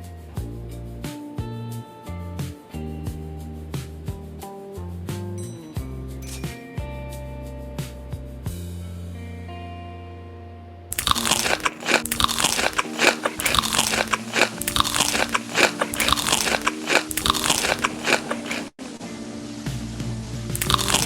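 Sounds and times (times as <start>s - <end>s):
crunching crisp food: 10.9s - 18.8s, 20.6s - 21.0s.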